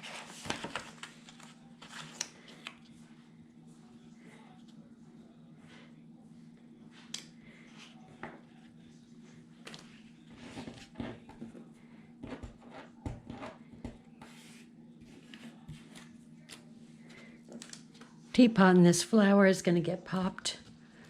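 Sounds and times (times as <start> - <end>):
paper rustling and tapping: 0.4 - 1.5.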